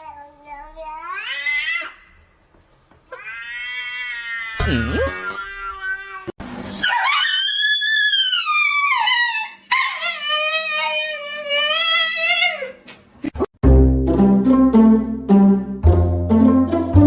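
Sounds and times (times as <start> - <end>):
pet howling: 3.2 - 12.7.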